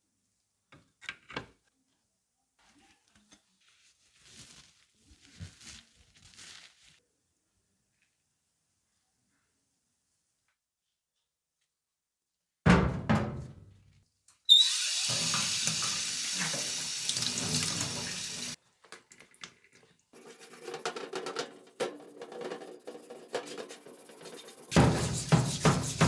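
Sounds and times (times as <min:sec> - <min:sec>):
water running from a tap: 0:14.5 - 0:18.6.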